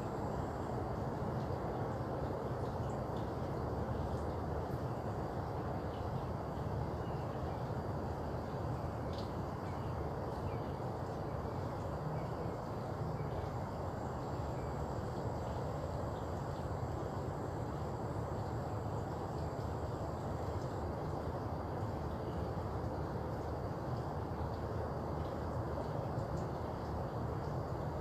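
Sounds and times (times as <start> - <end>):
high insect tone: 4.9 - 21.5.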